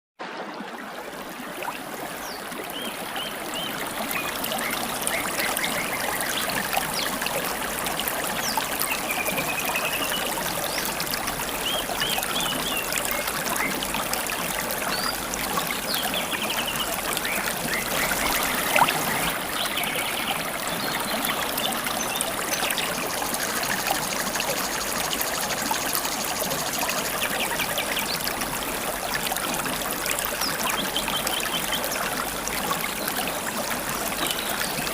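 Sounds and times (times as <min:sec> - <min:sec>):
river water babbling: 0:00.2 - 0:34.9.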